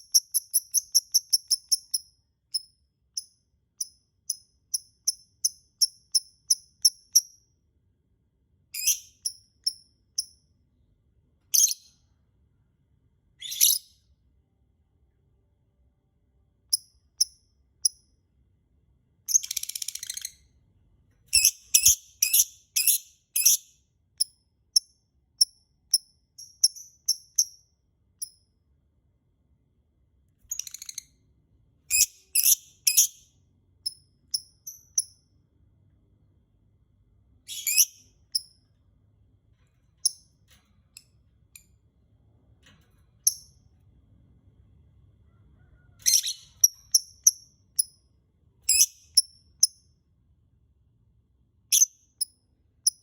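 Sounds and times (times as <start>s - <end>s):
lovebird chirping: 0.0s - 7.4s, 8.8s - 10.4s, 11.5s - 12.0s, 13.4s - 14.1s, 19.3s - 20.5s, 21.3s - 27.6s, 30.5s - 31.1s, 31.9s - 35.2s, 37.4s - 38.6s, 43.2s - 43.6s, 46.0s - 48.0s, 48.7s - 49.8s, 51.7s - 53.0s.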